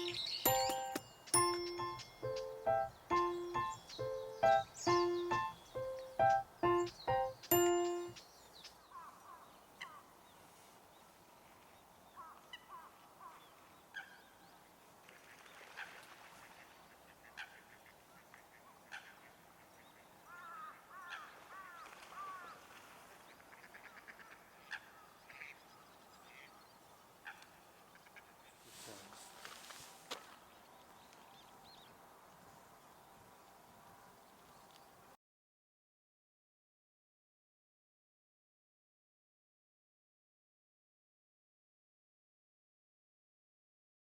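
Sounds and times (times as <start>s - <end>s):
faint waterbird calls: 8.9s - 10.2s, 12.1s - 14.4s, 15.0s - 29.5s.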